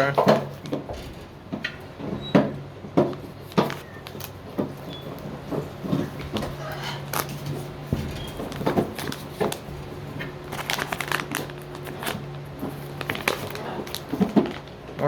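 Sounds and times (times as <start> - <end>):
steady low hum: 0.0 - 15.0
package rustling and crinkling: 5.9 - 7.7, 8.4 - 14.8.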